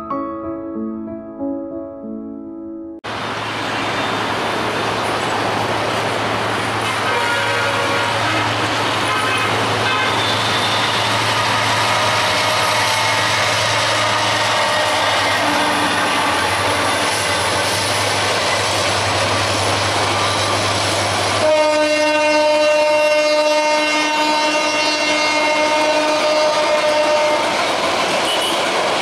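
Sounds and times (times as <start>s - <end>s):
train passing close by: 3.0s - 29.0s
train horn: 6.9s - 17.5s, 21.4s - 27.6s, 28.2s - 28.7s.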